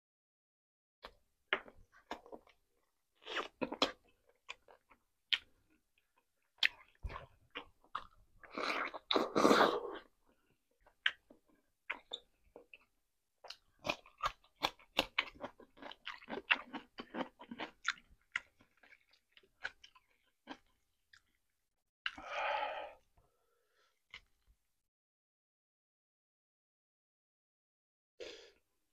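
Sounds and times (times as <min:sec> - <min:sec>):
chewing chicken: 0:12.8 - 0:21.4.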